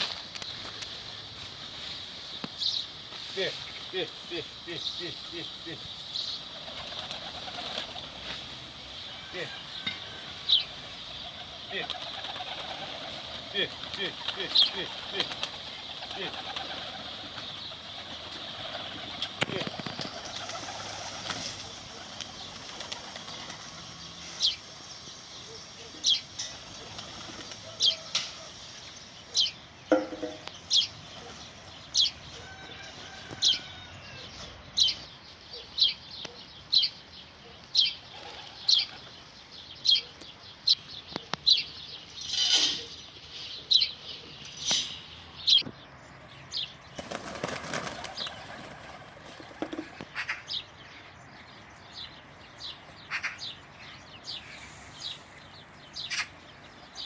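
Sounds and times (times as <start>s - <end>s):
bird chirping: 0.0s - 57.0s
wing flaps rustling: 6.6s - 8.6s, 11.2s - 23.8s.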